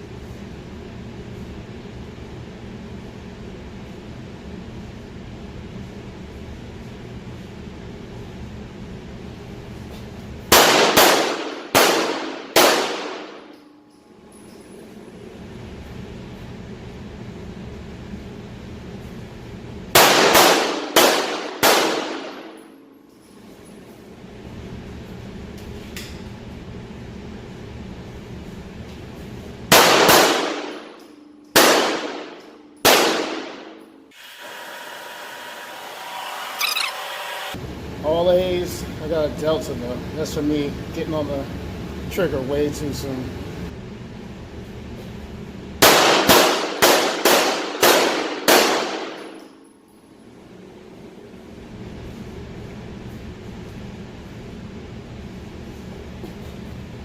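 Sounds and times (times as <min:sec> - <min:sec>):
pistol shots: 0:10.5 - 0:13.5, 0:20.0 - 0:22.6, 0:29.7 - 0:33.8, 0:45.8 - 0:49.4.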